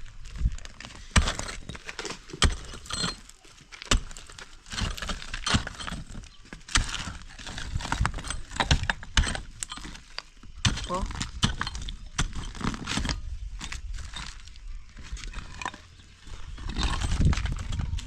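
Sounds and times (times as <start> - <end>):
demolition knocks and cracks: 0.3 - 18.0.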